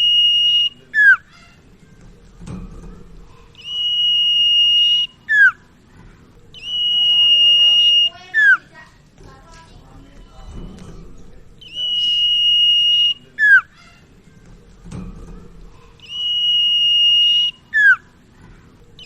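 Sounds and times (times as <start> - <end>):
bird whistling song: 0.0 - 1.7, 3.5 - 5.7, 6.5 - 8.8, 11.6 - 14.1, 16.0 - 18.2.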